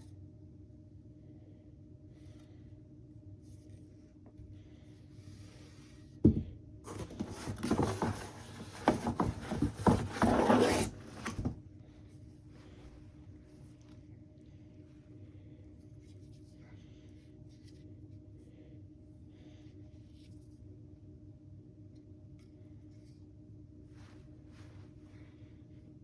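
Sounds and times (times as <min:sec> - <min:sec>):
packaging rustling and crinkling: 0:06.9 - 0:11.6.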